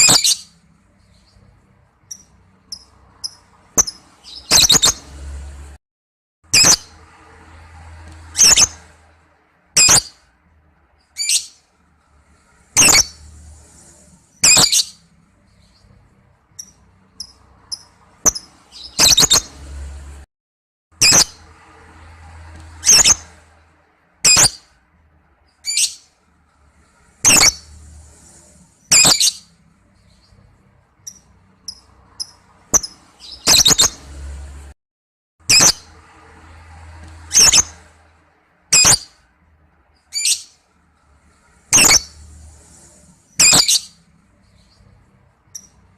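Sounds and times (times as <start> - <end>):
lovebird shrill calls: 0.0 - 0.5, 2.1 - 5.0, 8.4 - 8.8, 9.8 - 10.1, 12.8 - 13.2, 14.4 - 15.0, 16.6 - 19.5, 22.8 - 23.2, 24.2 - 24.6, 27.2 - 27.7, 28.9 - 29.4, 37.3 - 37.7, 38.7 - 39.1, 41.7 - 42.2, 43.4 - 43.9
lovebird chirping: 0.0 - 5.2, 8.3 - 8.8, 9.8 - 10.2, 12.8 - 19.6, 22.8 - 23.3, 24.2 - 24.7, 27.2 - 34.0, 37.2 - 37.8, 38.7 - 39.1, 41.7 - 42.6, 43.3 - 45.8.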